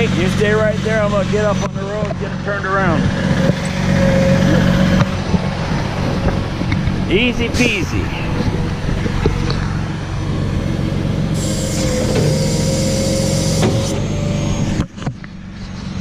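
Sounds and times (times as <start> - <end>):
diesel engine running: 0.0 - 16.0
hiss: 11.4 - 13.8.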